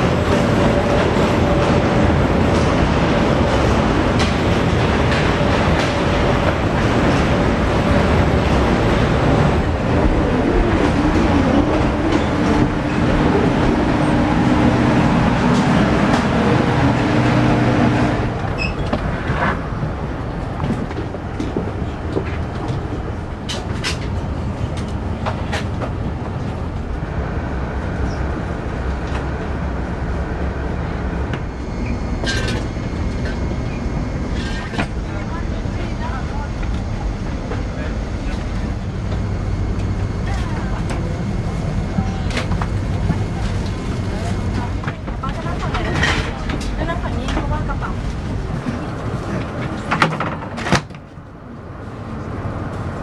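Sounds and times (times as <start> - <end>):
airplane cabin engine rumble: 0.0 - 53.0
low hum: 26.1 - 44.3.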